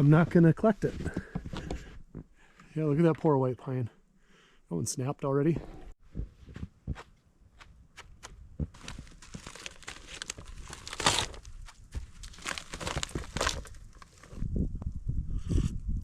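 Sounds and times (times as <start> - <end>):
plastic bag crinkling: 8.8 - 11.4, 12.2 - 14.1.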